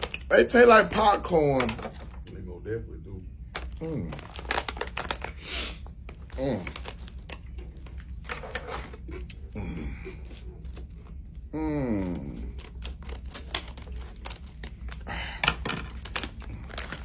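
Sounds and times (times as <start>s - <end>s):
crunchy candy chewing: 3.6s - 8.2s, 8.8s - 17.0s
person humming: 11.5s - 12.5s.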